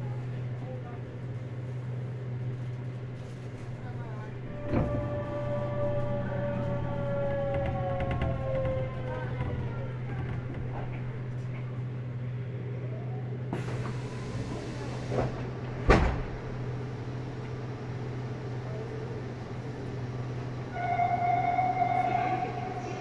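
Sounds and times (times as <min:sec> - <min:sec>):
electric train low hum: 0:00.0 - 0:23.0.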